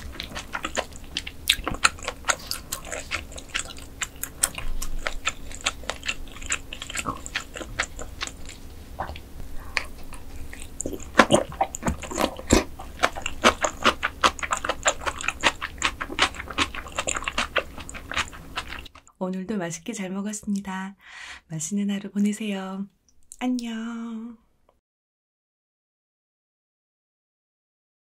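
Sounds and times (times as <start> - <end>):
chewing with sharp mouth clicks: 0.0 - 19.2.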